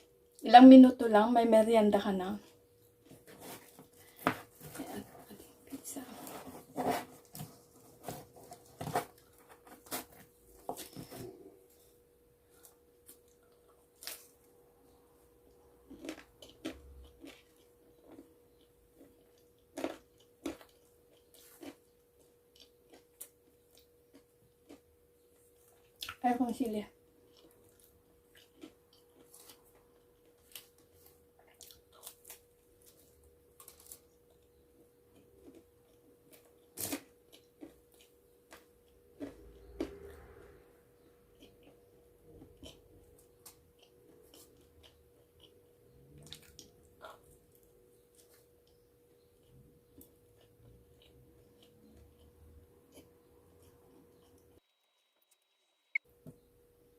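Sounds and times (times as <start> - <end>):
faint steady hum: 0.0 - 56.9
pizza being handled and eaten: 3.0 - 14.5, 27.2 - 40.0
person chewing: 15.5 - 26.2, 27.2 - 40.4, 41.0 - 54.4.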